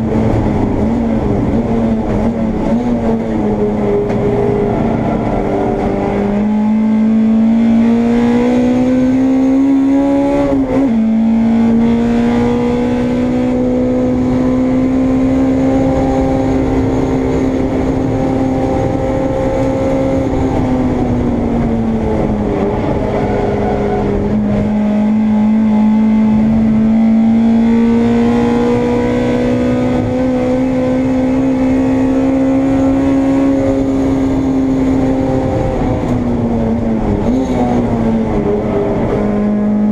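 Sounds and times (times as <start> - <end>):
race car engine at full throttle: 0.0 - 39.9.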